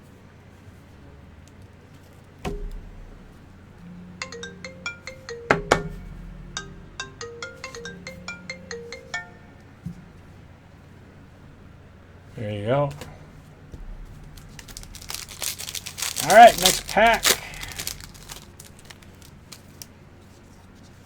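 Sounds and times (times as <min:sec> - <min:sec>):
thump: 0:02.5 - 0:03.6, 0:13.8 - 0:15.8
loud hits: 0:02.5 - 0:04.7, 0:13.7 - 0:19.4
electronic ringtone melody: 0:04.2 - 0:09.8.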